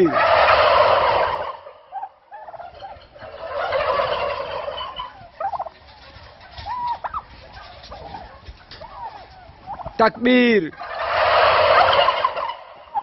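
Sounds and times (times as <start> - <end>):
turkeys gobbling: 0.0 - 13.0.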